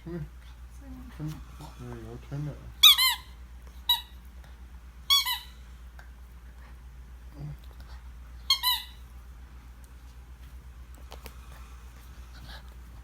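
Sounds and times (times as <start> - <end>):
squeaky dog toy squeaking: 2.8 - 3.3, 5.1 - 5.5, 8.5 - 9.0.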